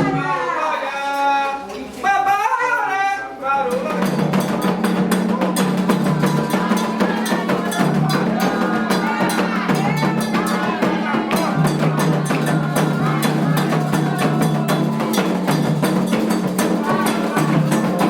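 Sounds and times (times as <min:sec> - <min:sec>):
person singing: 0:00.0 - 0:15.6, 0:16.4 - 0:18.0
voices singing over drums: 0:00.0 - 0:18.0
hand drums drumming fast rhythm: 0:03.7 - 0:18.0.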